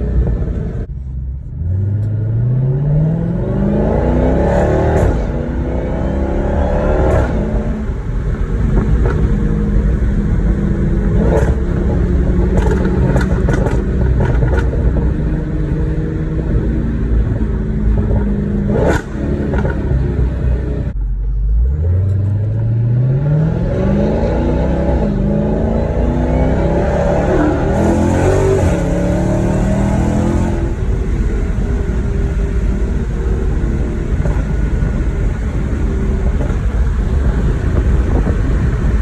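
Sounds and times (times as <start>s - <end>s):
car engine accelerating: 0.0s - 39.0s
exhaust pops and crackles: 4.5s - 21.4s, 24.8s - 39.0s.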